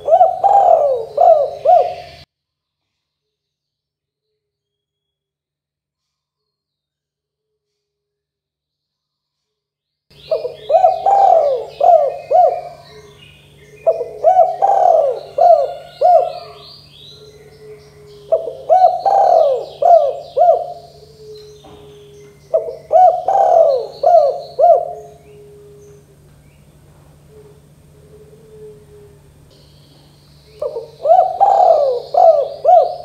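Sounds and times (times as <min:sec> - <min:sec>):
dove cooing: 0:00.0 - 0:02.2, 0:10.2 - 0:33.0
small birds chirping: 0:00.0 - 0:02.3, 0:10.1 - 0:33.0.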